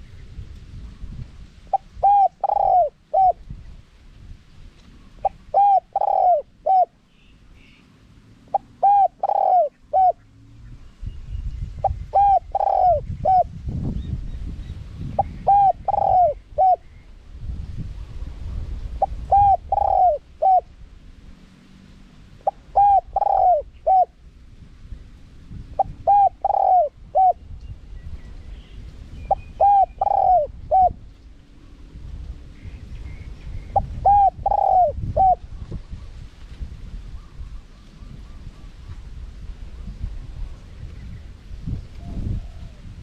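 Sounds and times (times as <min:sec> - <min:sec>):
dove cooing: 0:01.7 - 0:03.4, 0:05.2 - 0:07.0, 0:08.5 - 0:10.3, 0:11.8 - 0:13.5, 0:15.2 - 0:16.8, 0:19.0 - 0:20.7, 0:22.4 - 0:24.2, 0:25.8 - 0:27.4, 0:29.3 - 0:31.0, 0:33.7 - 0:35.4, 0:42.0 - 0:42.9.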